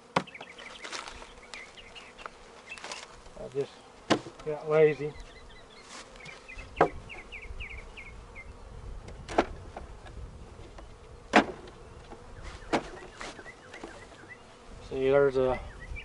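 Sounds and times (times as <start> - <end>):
wooden hive parts knocking: 0.0 - 3.2, 4.0 - 4.6, 6.1 - 7.3, 9.0 - 14.4
bees buzzing: 0.0 - 16.0.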